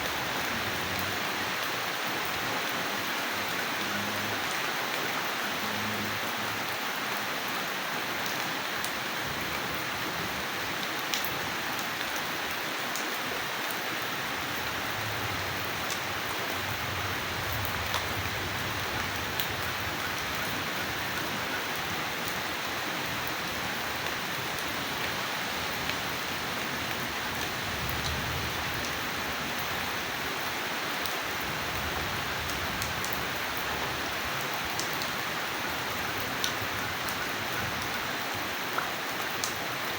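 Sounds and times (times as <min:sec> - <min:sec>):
heavy rain falling: 0:00.0 - 0:39.9
raindrop ticking on a surface: 0:15.8 - 0:23.4, 0:31.0 - 0:35.2, 0:35.8 - 0:38.0.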